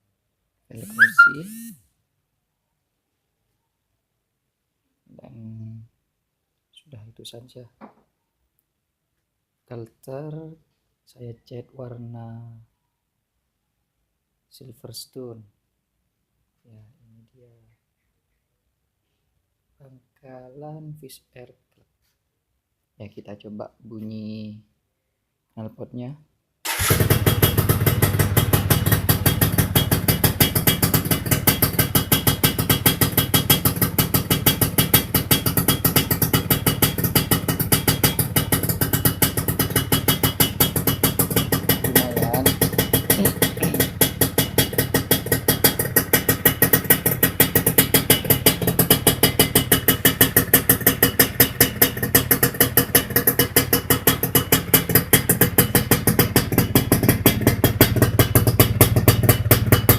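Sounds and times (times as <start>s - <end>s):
two-stroke engine running: 26.7s - 59.9s.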